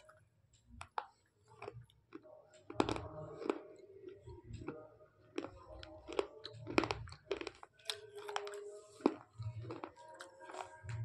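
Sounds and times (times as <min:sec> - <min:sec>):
pencils being bitten and crunched: 0:05.4 - 0:11.0.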